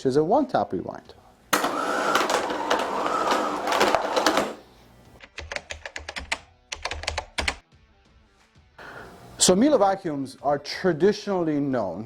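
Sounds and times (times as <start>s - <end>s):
vacuum cord rewind whirring: 1.5s - 4.8s.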